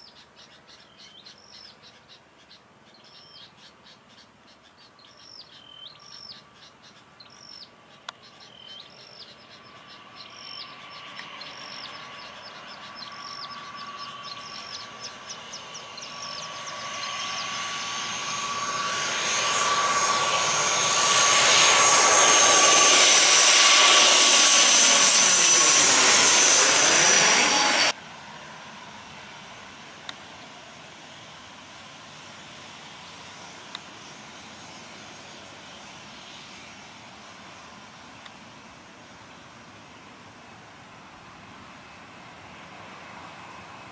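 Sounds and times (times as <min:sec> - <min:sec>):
bird calling: 0:00.0 - 0:18.3
jet airliner passing overhead: 0:07.4 - 0:43.9.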